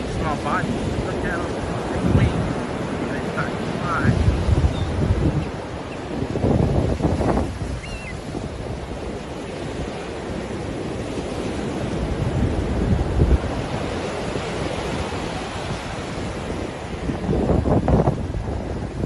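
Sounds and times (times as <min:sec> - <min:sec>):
ocean surf washing in: 0:00.0 - 0:19.0
wind buffeting microphone: 0:00.0 - 0:19.0
faint high chirp: 0:07.8 - 0:08.2.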